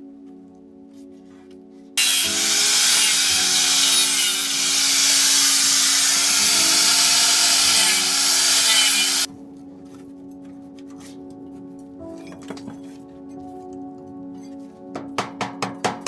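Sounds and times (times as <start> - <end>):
background music: 0.0 - 16.0
power tool harsh noise: 2.0 - 9.3.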